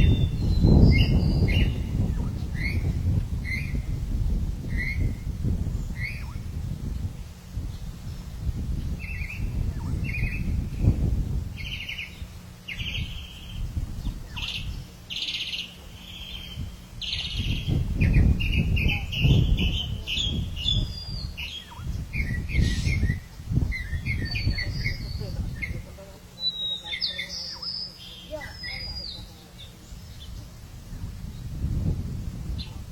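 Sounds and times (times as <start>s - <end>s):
birds chirping: 0.0s - 6.6s, 7.6s - 31.7s.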